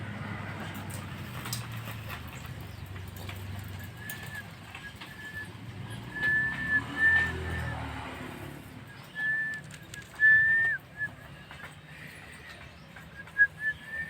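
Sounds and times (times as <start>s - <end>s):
bird whistling: 3.6s - 7.9s, 8.8s - 11.7s, 13.1s - 14.0s.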